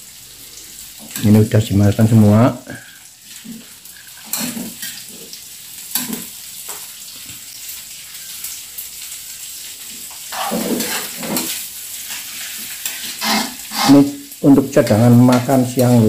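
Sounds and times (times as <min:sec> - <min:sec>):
food sizzling in a wok: 0:00.0 - 0:16.0
metal spatula scraping: 0:04.2 - 0:05.1, 0:10.2 - 0:14.3.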